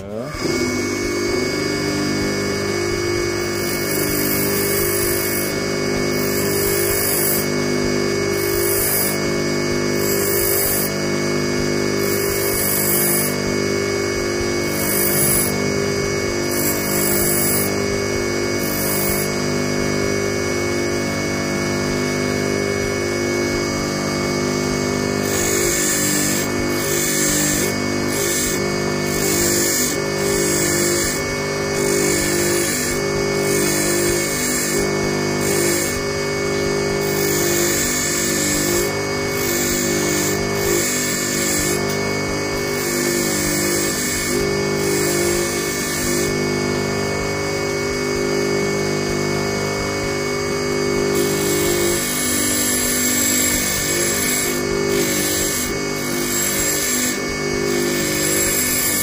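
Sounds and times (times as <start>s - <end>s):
bench grinder motor hum: 0.0s - 59.0s
high grinding hiss of wire: 2.8s - 7.5s, 8.3s - 11.0s, 11.6s - 19.9s, 25.2s - 46.4s, 51.1s - 59.0s.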